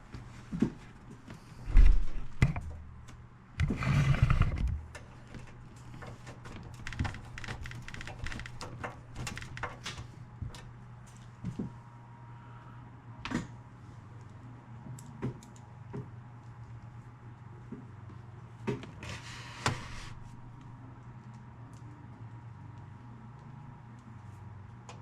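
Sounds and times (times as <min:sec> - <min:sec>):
steady low hum: 0:00.0 - 0:25.0
knocks and clicks of parts handled: 0:04.5 - 0:11.2.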